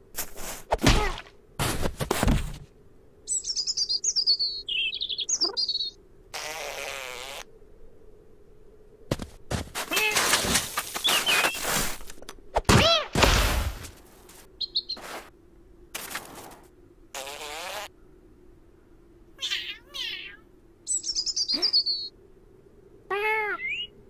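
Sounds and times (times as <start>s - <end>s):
cartoon bird chirps: 3.4s - 5.9s, 19.4s - 22.1s, 23.1s - 24.0s.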